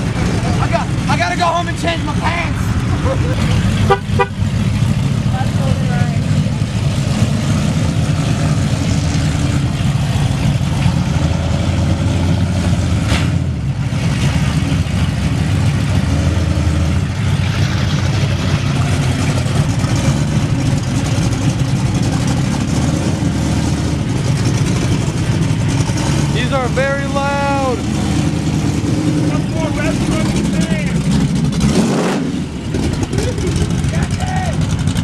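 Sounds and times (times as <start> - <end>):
loud car engines revving: 0.0 - 35.0.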